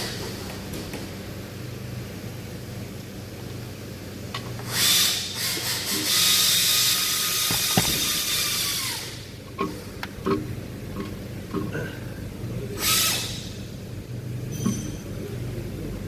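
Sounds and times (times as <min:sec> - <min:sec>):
pneumatic tool whine: 0:04.7 - 0:09.3, 0:12.8 - 0:13.7.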